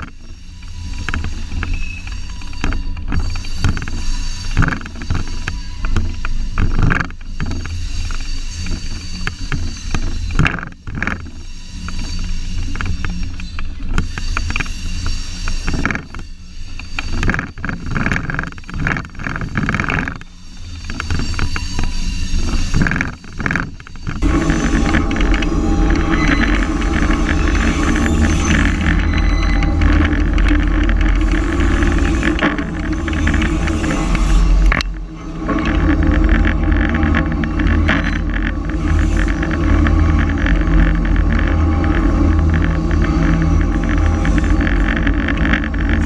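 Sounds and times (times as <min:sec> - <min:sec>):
train rumbling and clattering: 0:00.0 - 0:46.0
locomotive engine hum: 0:24.2 - 0:46.0.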